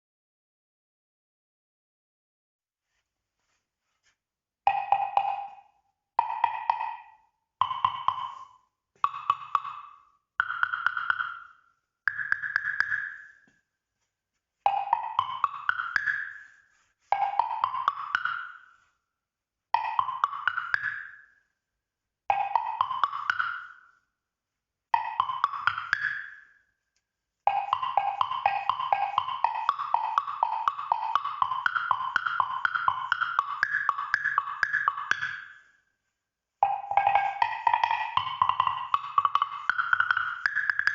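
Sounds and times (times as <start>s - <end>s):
pitched wood blocks struck: 4.7s - 13.6s, 14.7s - 18.9s, 19.8s - 21.4s, 22.3s - 24.0s, 25.0s - 26.7s, 27.5s - 35.8s, 36.6s - 40.9s.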